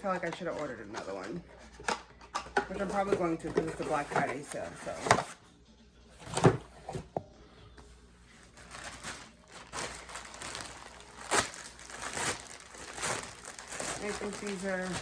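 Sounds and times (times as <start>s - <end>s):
packaging rustling and crinkling: 8.4s - 15.0s.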